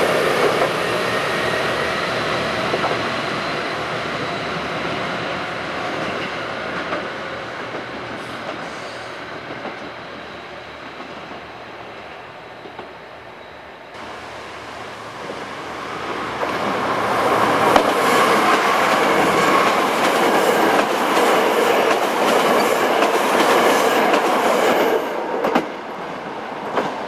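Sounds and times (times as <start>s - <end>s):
diesel train passing: 0.0s - 27.0s
wheels clacking over rail joints: 16.0s - 24.8s.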